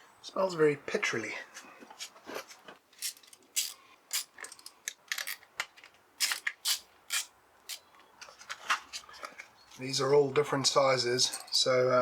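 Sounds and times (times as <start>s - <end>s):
metallic clicks and clinks: 11.2s - 11.8s.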